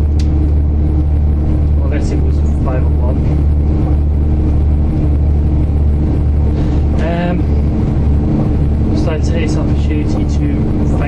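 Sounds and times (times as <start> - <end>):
train running drone from inside: 0.0 - 11.0.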